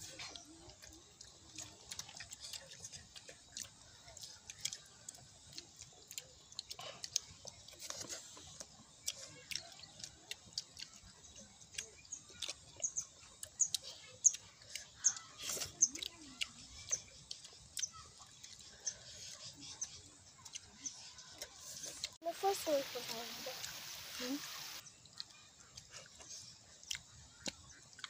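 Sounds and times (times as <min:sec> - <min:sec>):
children chewing and lip smacking: 0:00.0 - 0:28.0.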